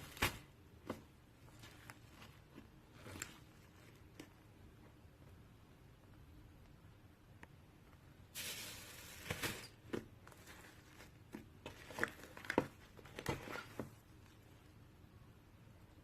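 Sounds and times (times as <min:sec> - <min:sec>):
rustling and crinkling handling: 0:00.0 - 0:05.4, 0:07.9 - 0:14.8.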